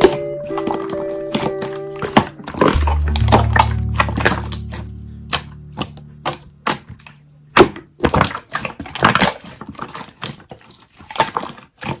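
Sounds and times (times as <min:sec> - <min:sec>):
slime crackling and popping: 0:00.0 - 0:12.0
low song chord: 0:00.3 - 0:07.2.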